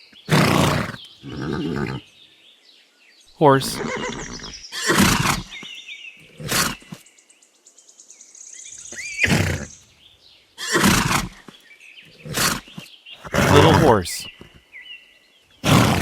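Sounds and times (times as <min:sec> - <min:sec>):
horse snorting: 0:00.1 - 0:02.0, 0:03.5 - 0:05.6, 0:06.2 - 0:07.0, 0:08.9 - 0:09.8, 0:10.6 - 0:14.6, 0:15.6 - 0:16.0
horse whinny: 0:00.3 - 0:02.0, 0:03.6 - 0:05.6, 0:06.3 - 0:07.0, 0:08.9 - 0:09.8, 0:10.6 - 0:11.5, 0:12.2 - 0:14.6, 0:15.6 - 0:16.0.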